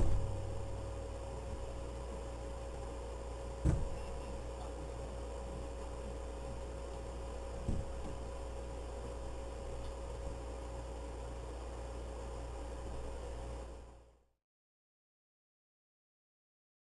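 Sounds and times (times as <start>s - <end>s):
short thump: 0.0s - 0.4s, 3.6s - 4.0s, 7.6s - 8.2s
thin whine: 0.0s - 14.3s
low electrical hum: 0.0s - 14.4s.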